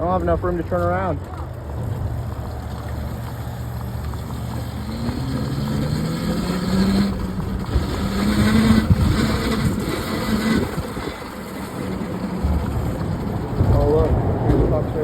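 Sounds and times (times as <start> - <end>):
electric motor whining: 4.1 - 13.3
low rumble: 7.0 - 15.0.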